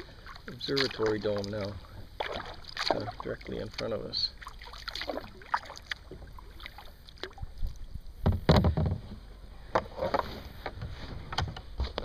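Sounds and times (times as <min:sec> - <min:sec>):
kayak paddle splashing water: 0:00.0 - 0:09.2.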